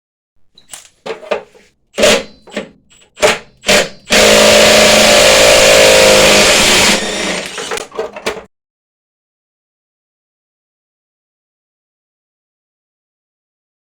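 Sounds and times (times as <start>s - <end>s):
knocks and clicks: 0.6s - 4.3s, 7.2s - 8.5s
impact wrench running: 2.0s - 8.4s.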